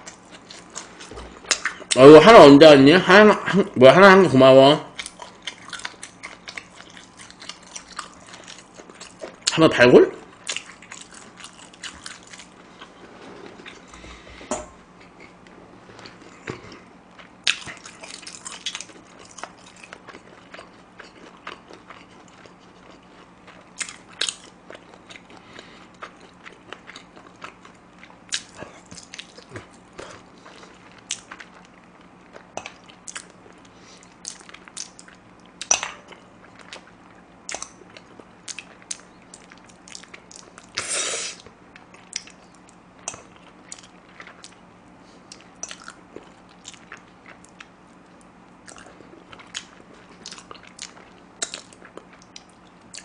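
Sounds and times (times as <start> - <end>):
chewing chicken feet: 4.9 - 9.6, 15.0 - 40.8, 41.8 - 53.0.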